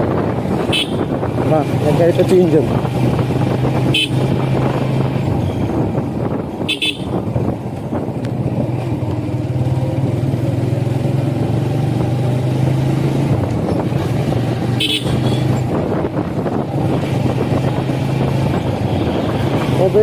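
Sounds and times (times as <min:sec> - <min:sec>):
motorcycle engine running: 0:00.0 - 0:20.0
horn beep: 0:06.7 - 0:07.2, 0:14.8 - 0:15.4.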